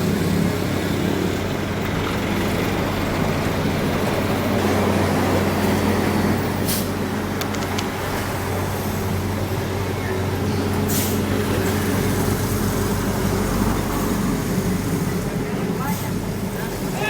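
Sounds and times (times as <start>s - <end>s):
heavy diesel engine running: 0.0s - 17.0s
light clicks: 7.4s - 8.0s.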